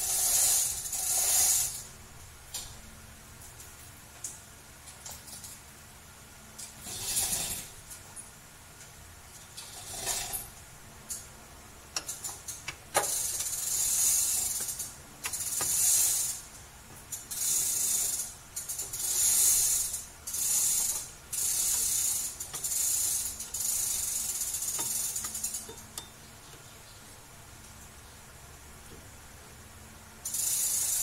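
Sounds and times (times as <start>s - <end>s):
sharp metallic clicks: 11.9s - 26.7s
high hissing bursts: 13.0s - 16.6s, 17.2s - 26.0s.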